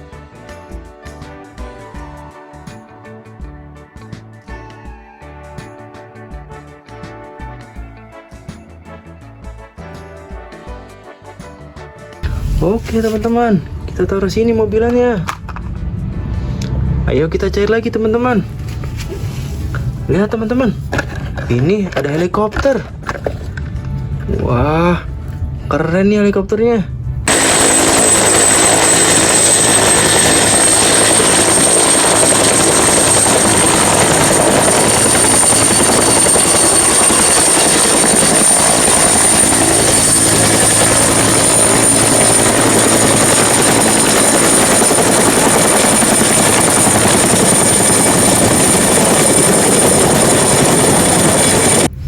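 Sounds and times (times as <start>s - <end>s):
helicopter rotor and engine: 27.3s - 51.9s.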